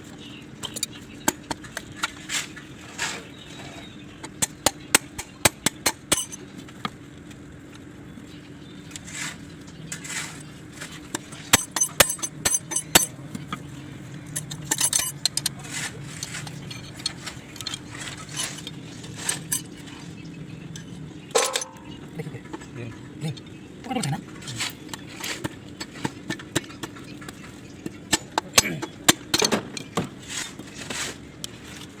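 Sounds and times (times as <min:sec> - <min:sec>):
low steady hum: 0:00.0 - 0:32.0
metal parts clinking: 0:06.1 - 0:06.4, 0:11.3 - 0:13.6, 0:14.3 - 0:20.1, 0:20.8 - 0:21.9.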